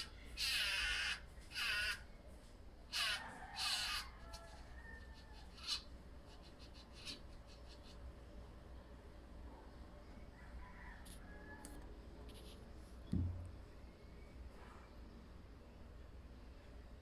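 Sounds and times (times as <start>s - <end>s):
small animal raspy calls: 0.0s - 2.1s, 2.9s - 8.0s.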